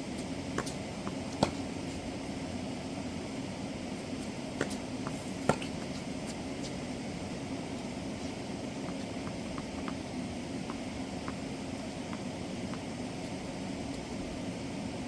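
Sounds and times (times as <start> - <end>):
background hiss and hum: 0.0 - 15.0
tennis ball impacts: 0.5 - 1.7, 4.6 - 6.0.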